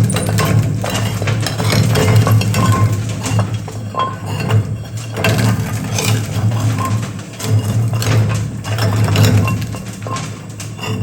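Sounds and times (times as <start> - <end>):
metallic clatters and clinks: 0.0 - 4.6.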